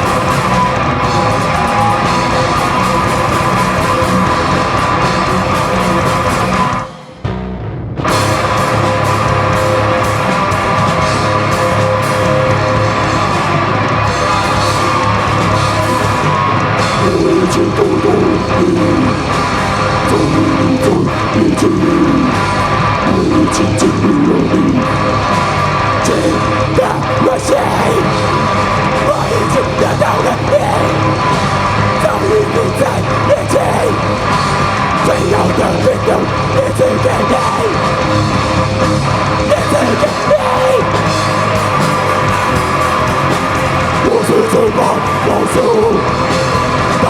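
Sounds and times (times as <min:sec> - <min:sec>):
live rock band playing: 0:00.0 - 0:47.0
person singing or shouting: 0:11.0 - 0:38.4, 0:39.4 - 0:42.8, 0:43.9 - 0:47.0.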